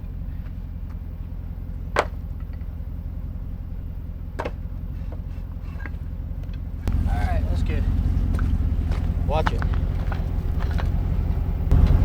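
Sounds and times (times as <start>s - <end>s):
truck engine running: 0.0s - 12.0s
sharp knocks: 1.9s - 2.6s.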